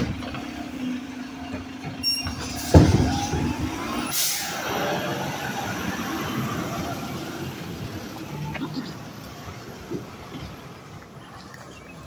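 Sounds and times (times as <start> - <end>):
garbage truck engine running: 0.0 - 8.6
air brake hiss: 4.1 - 4.6.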